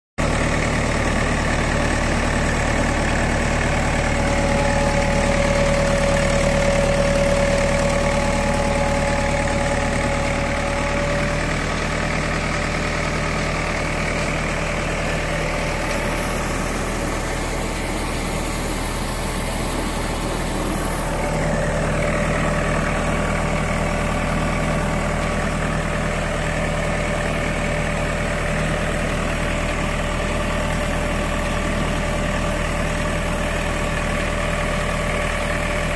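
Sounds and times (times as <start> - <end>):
pump truck engine humming: 0.2 - 35.9
faint whines: 1.7 - 23.4.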